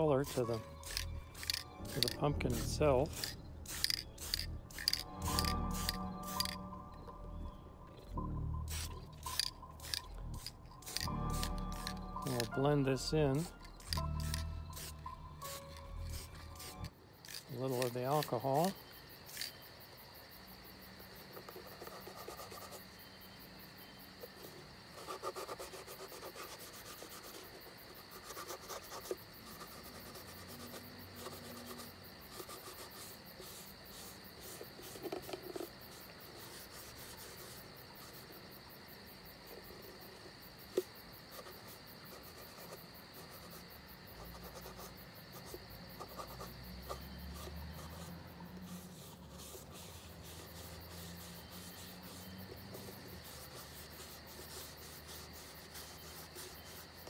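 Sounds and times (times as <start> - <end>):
high-pitched insect chirring: 0.0 - 57.0
paper towel wiping a surface: 25.0 - 38.3, 46.1 - 57.0.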